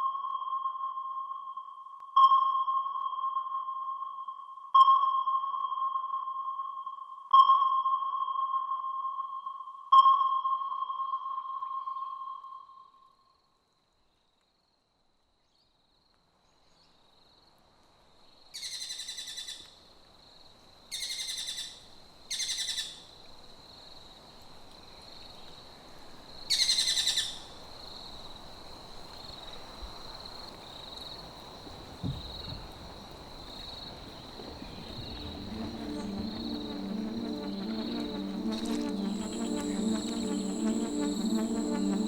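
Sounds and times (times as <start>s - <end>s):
high insect drone: 27.8s - 42.0s.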